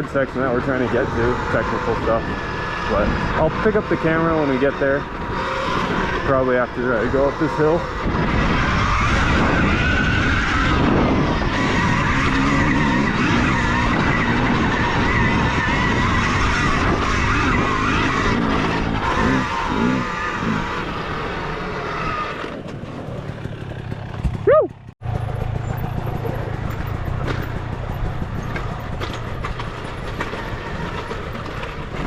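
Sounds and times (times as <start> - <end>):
electric motor whining: 0.5 - 22.6
tyres scrabbling on dirt: 25.1 - 32.0.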